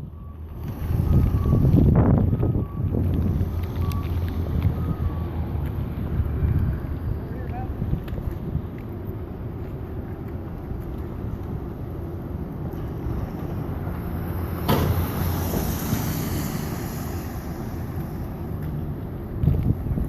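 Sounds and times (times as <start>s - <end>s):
wind buffeting microphone: 0.0s - 9.6s, 18.8s - 20.0s.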